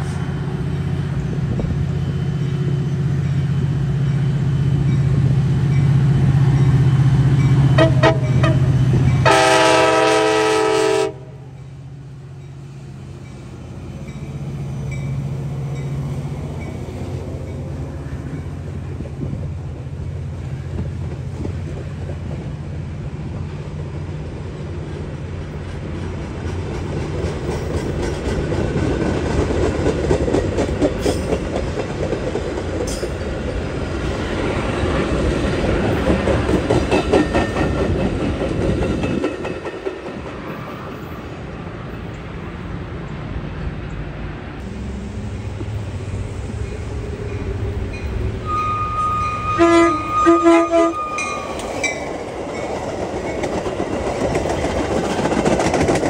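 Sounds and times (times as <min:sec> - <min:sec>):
locomotive engine hum: 0:00.0 - 0:56.0
train wheels clickety-clacking: 0:13.2 - 0:23.4, 0:24.8 - 0:41.2, 0:50.1 - 0:56.0.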